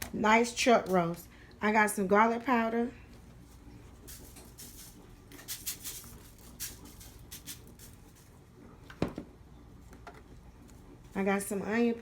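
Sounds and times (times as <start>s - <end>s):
spice shaker shaking: 3.9s - 8.4s.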